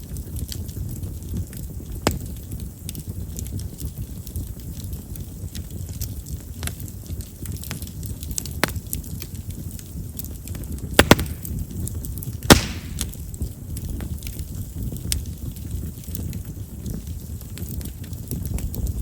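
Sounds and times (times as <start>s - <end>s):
campfire crackling: 0.0s - 19.0s
flame rumbling: 0.0s - 19.0s
wood popping: 10.9s - 11.8s, 12.5s - 13.3s.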